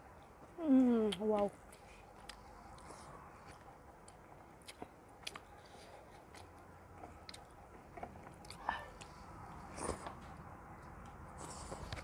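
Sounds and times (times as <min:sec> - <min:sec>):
faint chewing: 0:00.0 - 0:12.0.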